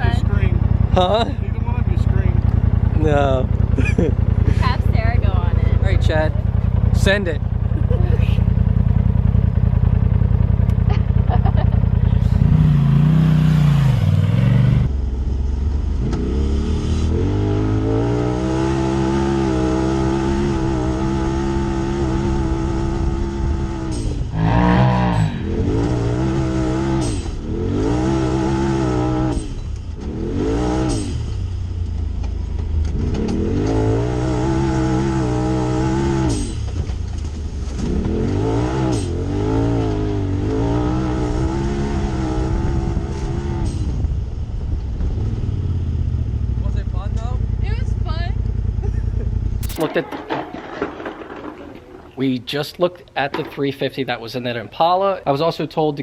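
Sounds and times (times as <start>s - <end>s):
car engine revving through gears: 12.2s - 14.9s, 15.9s - 31.4s, 32.7s - 44.0s.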